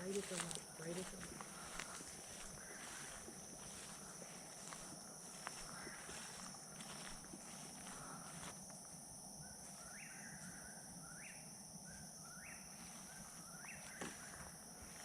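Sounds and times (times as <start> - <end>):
night insects droning: 0.0 - 15.0.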